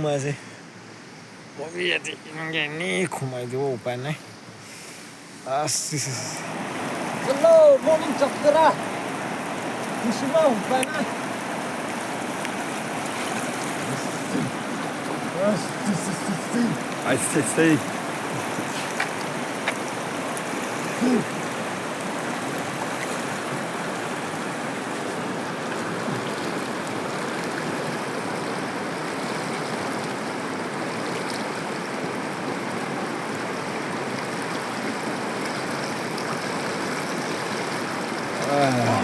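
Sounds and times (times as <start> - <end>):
stream water running: 0.0 - 39.0.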